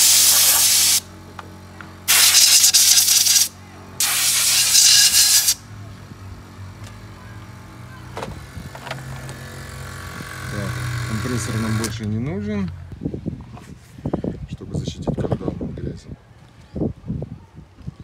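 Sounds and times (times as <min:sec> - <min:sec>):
air blow gun hissing bursts: 0:00.0 - 0:01.0, 0:02.1 - 0:05.6.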